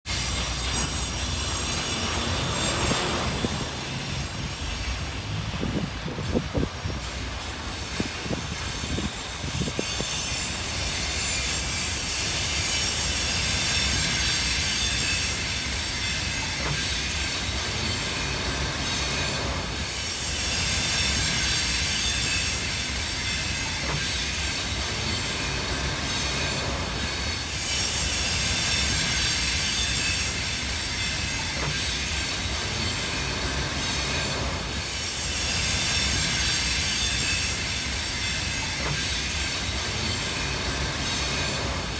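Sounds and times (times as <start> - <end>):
train wheels rumbling and clattering: 0.0 - 41.9
metallic wheel ringing: 0.1 - 5.8.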